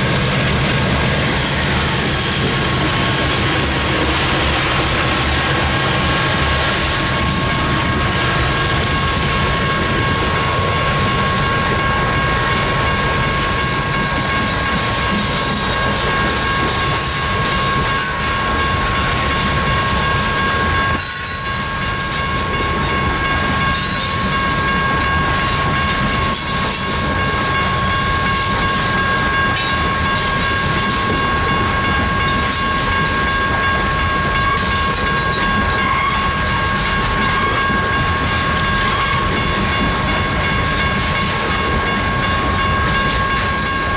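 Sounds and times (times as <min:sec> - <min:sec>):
wheels clacking over rail joints: 0:00.0 - 0:21.3
train cars rumbling past: 0:00.0 - 0:43.9.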